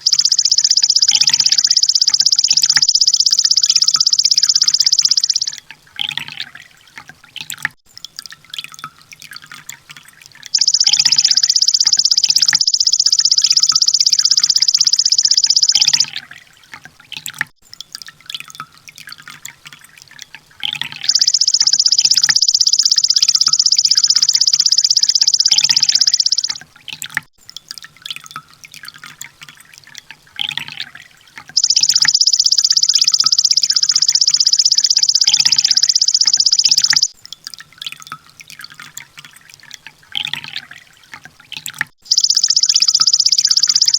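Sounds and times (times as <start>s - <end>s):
soft bird chirps: 0.0s - 6.4s, 10.5s - 16.3s, 20.7s - 26.6s, 31.6s - 37.2s, 42.0s - 43.9s
sunbird high-pitched trills: 0.0s - 6.5s, 10.5s - 16.4s, 20.7s - 26.6s, 31.6s - 37.2s, 42.0s - 43.9s.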